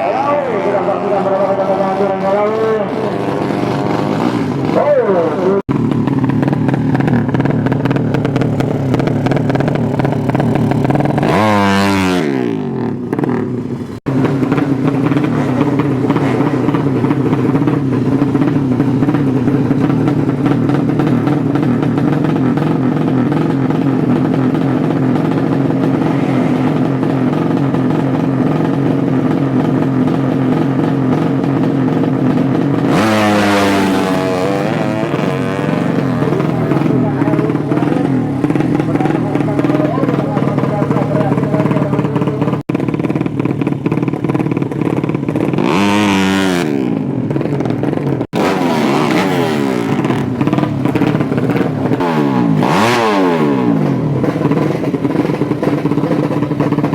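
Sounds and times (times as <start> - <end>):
motorcycle engines at high revs: 0.0 - 56.9.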